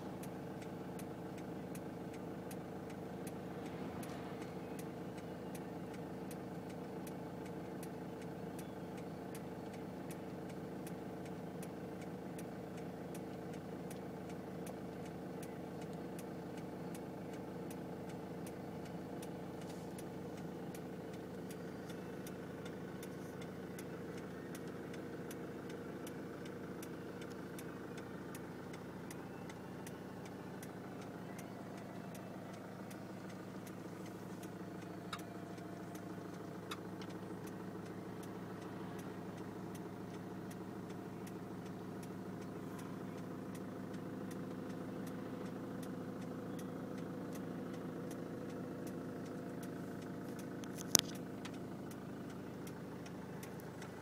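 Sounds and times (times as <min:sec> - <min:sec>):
car engine idling: 0:00.0 - 0:54.0
steady even ticking: 0:00.2 - 0:54.0.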